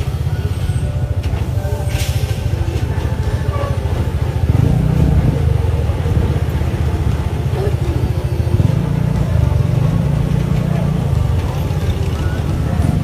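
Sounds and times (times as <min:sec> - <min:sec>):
truck diesel engine rumbling: 0:00.0 - 0:13.0
short hiss: 0:01.9 - 0:02.5.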